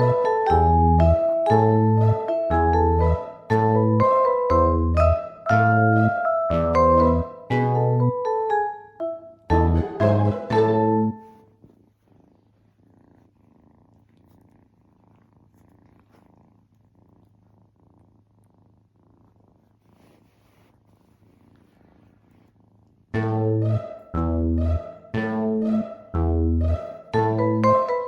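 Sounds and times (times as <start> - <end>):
kitten purring: 0.0 - 7.4, 9.5 - 23.3, 23.9 - 28.0
background music: 0.0 - 11.2, 23.2 - 28.0.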